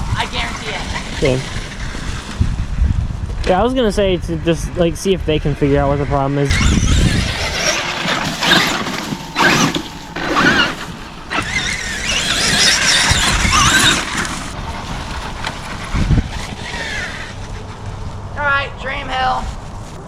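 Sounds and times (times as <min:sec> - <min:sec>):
toy truck electric motor whining: 0:06.5 - 0:17.7.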